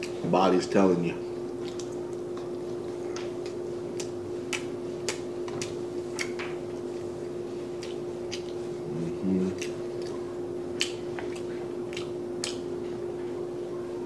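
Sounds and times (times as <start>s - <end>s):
steady hum: 0.0s - 14.0s
person chewing food: 1.5s - 13.0s.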